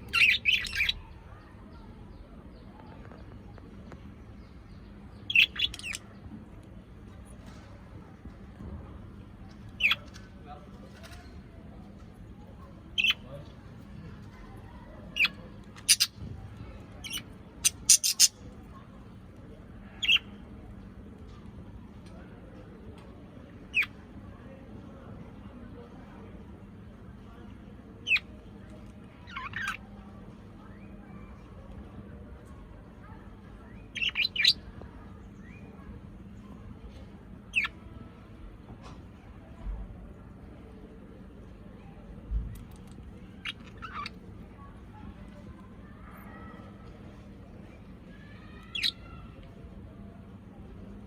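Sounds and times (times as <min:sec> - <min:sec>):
parrot high-pitched calls: 0:00.1 - 0:01.1, 0:05.3 - 0:06.0, 0:15.2 - 0:16.1, 0:17.0 - 0:18.3, 0:29.2 - 0:29.8, 0:33.9 - 0:34.6, 0:43.4 - 0:44.2, 0:48.2 - 0:49.4.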